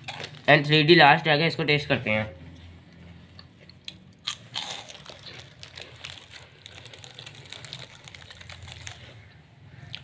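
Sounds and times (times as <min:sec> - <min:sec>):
crunchy snack being chewed: 0:00.0 - 0:00.5, 0:03.4 - 0:10.0.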